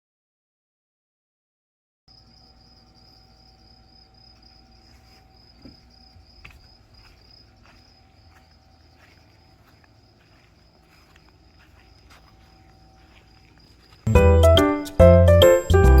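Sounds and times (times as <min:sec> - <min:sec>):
faint insects trilling: 0:02.1 - 0:14.1.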